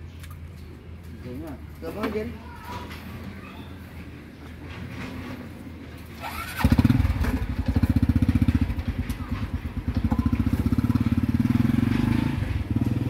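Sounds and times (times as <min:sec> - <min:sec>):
motorcycle engine starting and puttering: 0:04.9 - 0:13.0.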